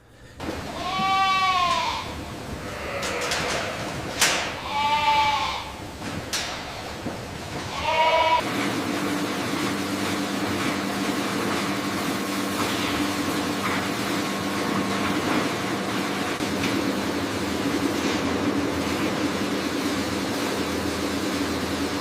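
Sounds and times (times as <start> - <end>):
steady mechanical hum: 0.0 - 22.0
goat bleating: 0.7 - 3.9, 4.5 - 5.8, 7.7 - 8.4.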